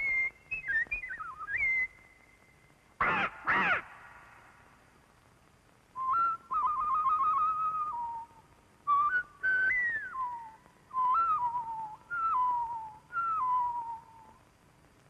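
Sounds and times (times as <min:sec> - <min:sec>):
woman whistling: 0:00.0 - 0:02.3, 0:06.0 - 0:14.4.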